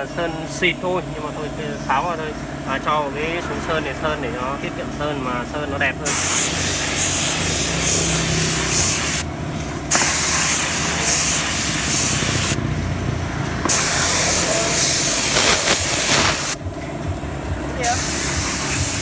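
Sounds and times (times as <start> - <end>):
steady low hum: 0.0 - 19.0
paint spray gun hissing: 6.0 - 12.8, 13.6 - 16.7, 17.8 - 19.0.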